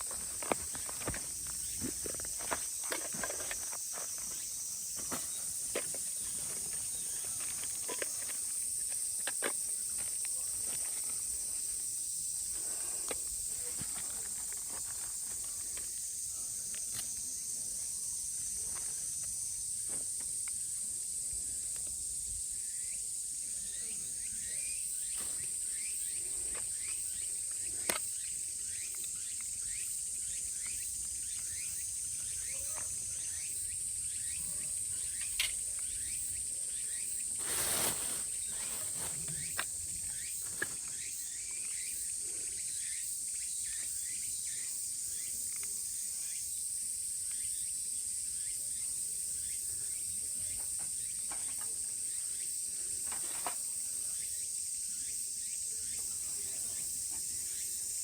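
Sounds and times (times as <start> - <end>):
rustle: 0.0 - 42.4
cicadas chorus: 0.0 - 58.0.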